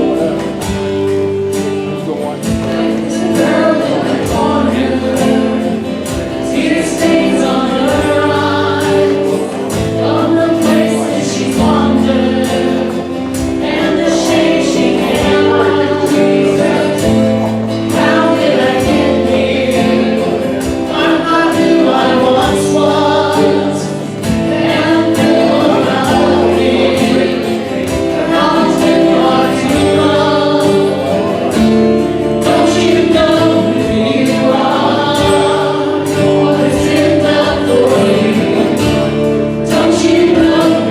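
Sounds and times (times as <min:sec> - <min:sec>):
choir singing a hymn: 0:00.0 - 0:40.9.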